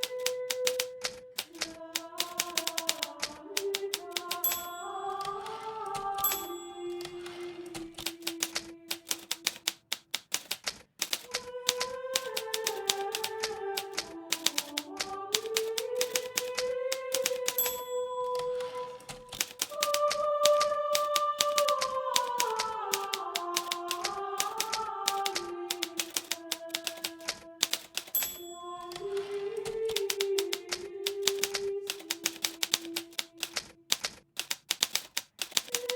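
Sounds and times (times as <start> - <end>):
typewriter keys clacking: 0.0 - 35.9.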